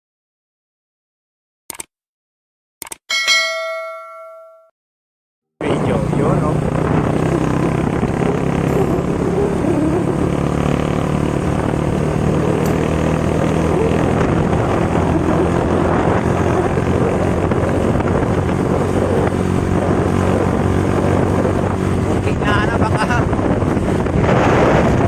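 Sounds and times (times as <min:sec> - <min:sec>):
motorcycle engine running: 0:05.6 - 0:25.0
wind on microphone: 0:05.6 - 0:25.0.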